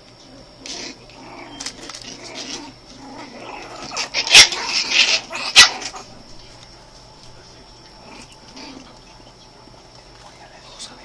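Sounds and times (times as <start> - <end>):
puppies growling: 0.3 - 11.0
puppies yapping: 0.7 - 6.1.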